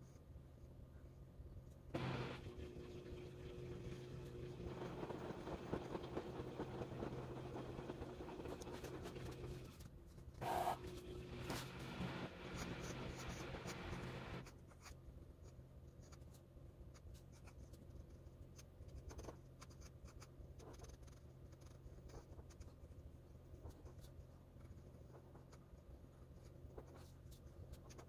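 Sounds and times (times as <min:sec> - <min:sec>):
washing machine humming: 0:01.9 - 0:09.8, 0:10.4 - 0:14.4
pen nib scratching on paper: 0:10.4 - 0:10.9, 0:11.5 - 0:28.0.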